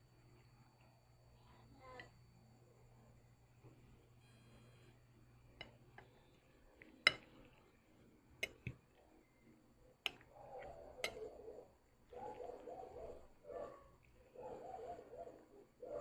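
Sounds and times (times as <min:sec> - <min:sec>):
muffled eating sounds: 0:04.9 - 0:16.0
cutlery clicking against a bowl: 0:07.0 - 0:07.4, 0:08.4 - 0:08.8, 0:10.0 - 0:11.3.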